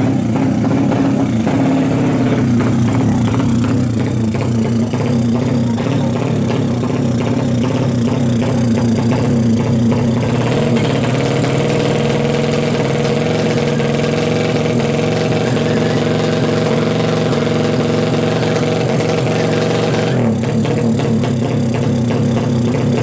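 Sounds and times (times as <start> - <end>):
motorcycle engine running steadily: 0.0 - 23.0.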